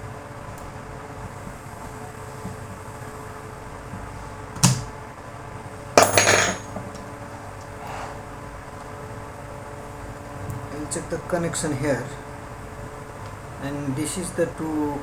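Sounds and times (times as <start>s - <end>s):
metallic clatter: 6.0s - 6.7s.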